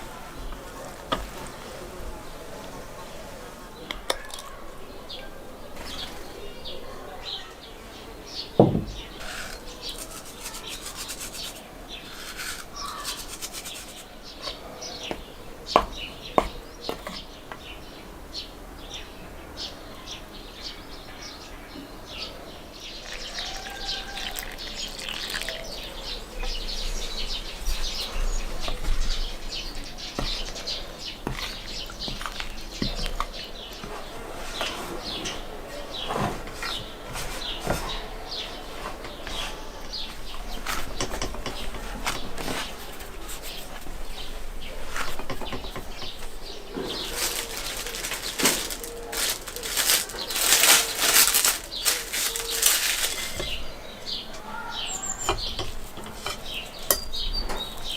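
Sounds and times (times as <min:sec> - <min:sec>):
birds chirping: 0:00.0 - 0:57.9
sharp knocks: 0:08.6 - 0:09.3, 0:15.1 - 0:17.7
hands rubbing and scraping food: 0:09.2 - 0:17.8, 0:27.0 - 0:35.4, 0:37.2 - 0:53.8.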